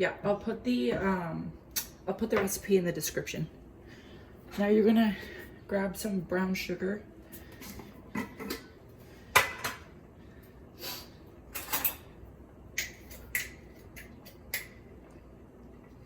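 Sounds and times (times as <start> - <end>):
dishes and utensils clinking: 11.5 - 12.2.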